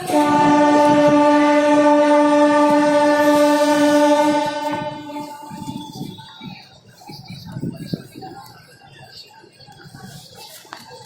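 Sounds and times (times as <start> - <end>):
train horn blast: 0.0 - 5.8.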